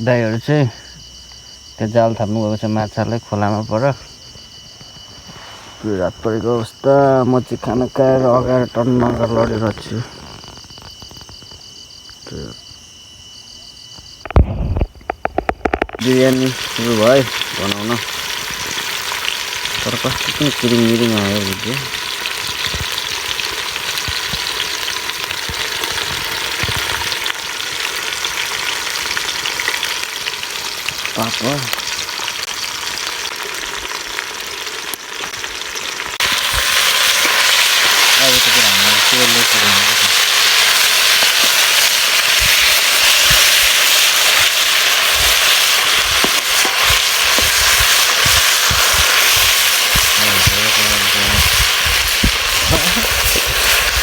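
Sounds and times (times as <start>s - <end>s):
pops and crackles: 4.6s - 5.5s, 9.0s - 11.7s, 13.9s - 54.0s
oil sizzling in a pot: 15.3s - 54.0s.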